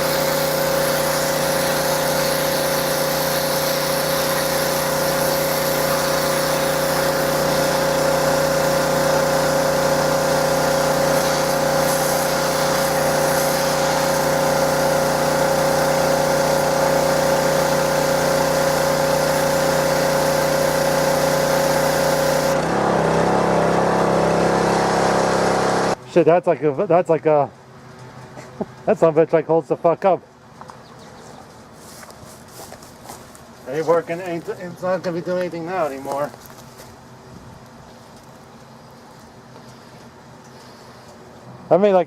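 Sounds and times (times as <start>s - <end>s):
water spray hissing: 0.0s - 23.2s
pressure washer engine running: 0.0s - 26.0s, 33.7s - 36.4s.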